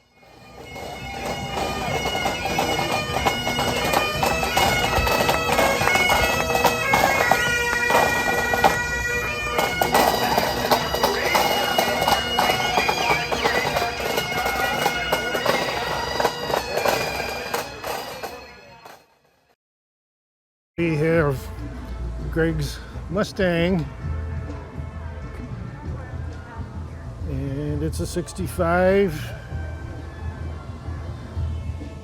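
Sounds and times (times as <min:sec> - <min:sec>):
bagpipes playing a tune: 0:00.0 - 0:19.0.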